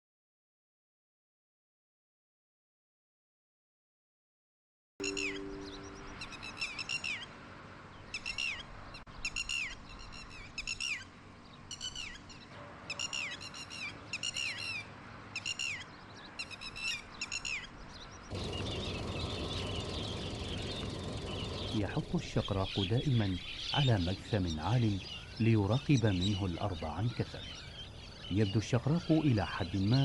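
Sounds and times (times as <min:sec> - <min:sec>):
bird calling: 0:05.0 - 0:07.3, 0:11.7 - 0:30.0
steady background noise: 0:05.0 - 0:30.0.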